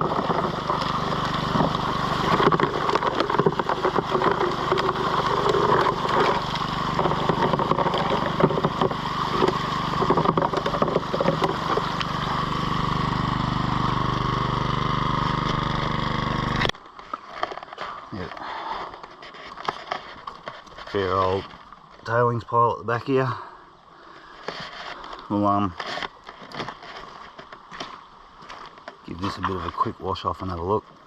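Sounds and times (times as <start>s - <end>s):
small petrol engine running: 0.0s - 16.7s
water splashing: 0.0s - 16.7s.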